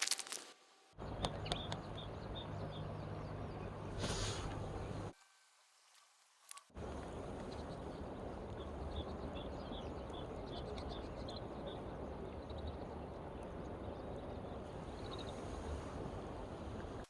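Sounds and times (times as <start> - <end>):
bird chirping: 1.0 - 5.1.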